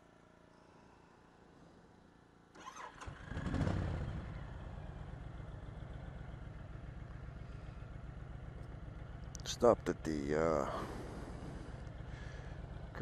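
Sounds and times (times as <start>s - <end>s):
motorcycle engine starting and idling: 2.5s - 13.0s.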